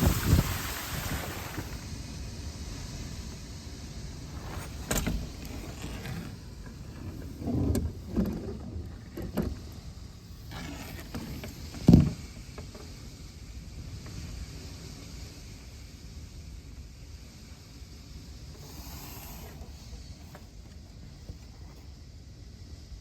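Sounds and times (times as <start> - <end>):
strong wind on microphone: 0.0 - 2.0
dull thumps and knocks: 10.8 - 12.9.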